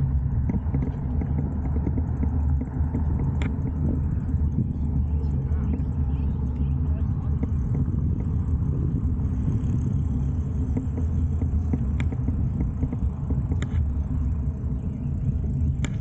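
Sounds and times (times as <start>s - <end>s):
road noise: 0.0s - 16.0s
wind buffeting microphone: 0.0s - 16.0s
faint clicks: 15.7s - 16.0s.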